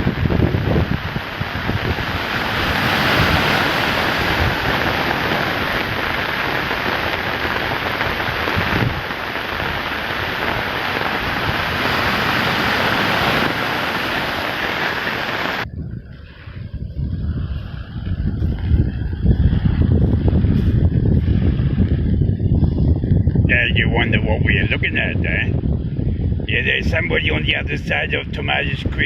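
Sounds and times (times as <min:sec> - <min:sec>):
rushing water: 0:00.0 - 0:15.7
wind buffeting microphone: 0:00.0 - 0:29.0.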